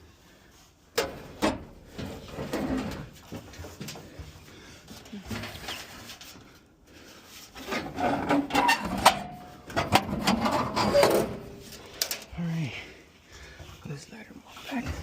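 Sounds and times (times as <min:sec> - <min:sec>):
parts clicking knocking and scraping: 0:07.6 - 0:12.3.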